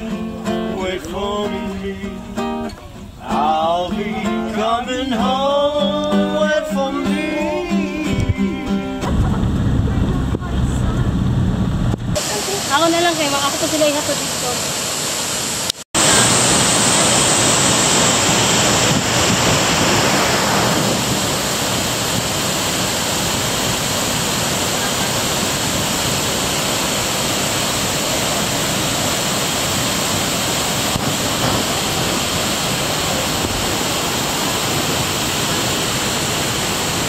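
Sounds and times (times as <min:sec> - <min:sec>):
waterfall rushing: 0:12.2 - 0:37.0.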